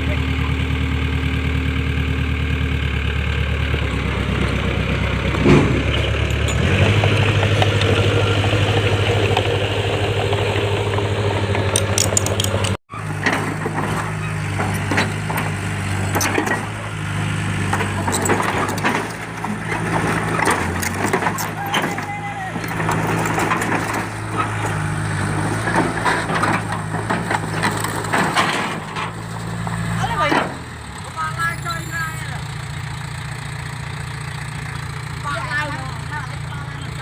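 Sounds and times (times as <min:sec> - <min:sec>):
heavy diesel engine running: 0:00.0 - 0:37.0
clanks and knocks: 0:05.2 - 0:08.1, 0:10.3 - 0:16.9, 0:17.6 - 0:30.7.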